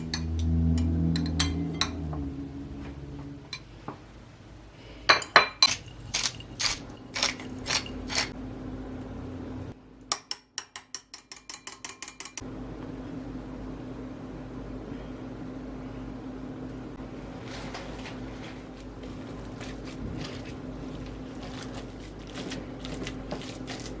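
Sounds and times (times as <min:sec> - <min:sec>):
steady hum: 0:00.0 - 0:10.0, 0:12.4 - 0:24.0
utensils knocking against dishes: 0:05.1 - 0:08.3.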